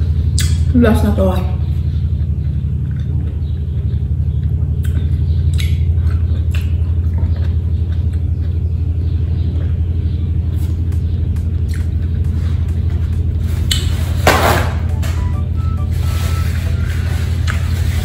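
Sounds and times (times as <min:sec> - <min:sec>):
loud low rumble: 0:00.0 - 0:18.0
chewing raw vegetables: 0:01.6 - 0:13.9, 0:15.9 - 0:18.0.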